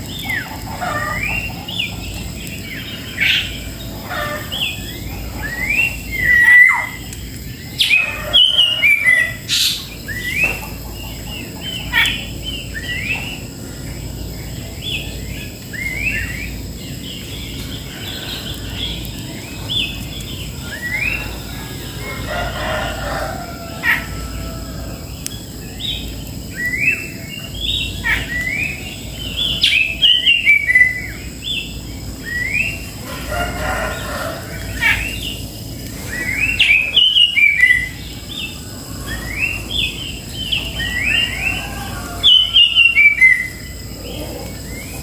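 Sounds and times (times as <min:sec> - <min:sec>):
songbirds chirping: 0:00.0 - 0:45.0
rooster crowing: 0:07.8 - 0:09.8, 0:20.6 - 0:25.3, 0:32.5 - 0:35.3, 0:36.1 - 0:45.0.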